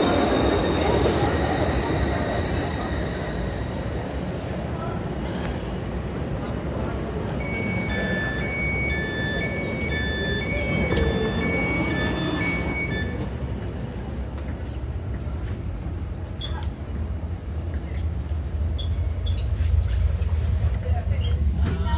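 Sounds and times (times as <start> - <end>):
train rumble: 0.0 - 21.9
two-tone electronic door beep: 6.0 - 13.8.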